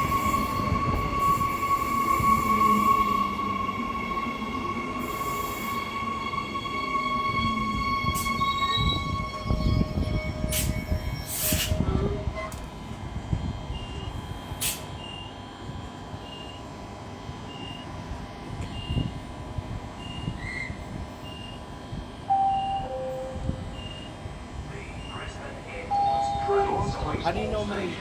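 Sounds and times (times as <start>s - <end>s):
air hissing bursts: 11.3s - 11.8s
high-pitched warning beeps: 22.3s - 24.2s, 25.0s - 27.7s.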